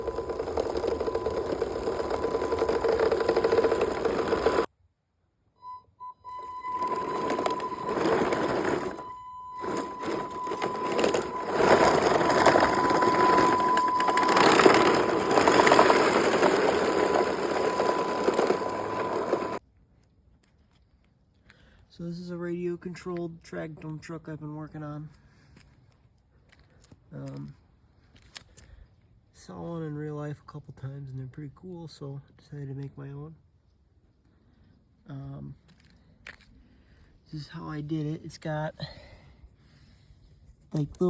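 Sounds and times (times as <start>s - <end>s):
electric motors whining: 0.0s - 4.7s, 6.2s - 19.6s
tracks rattling: 0.0s - 4.7s, 6.6s - 19.6s.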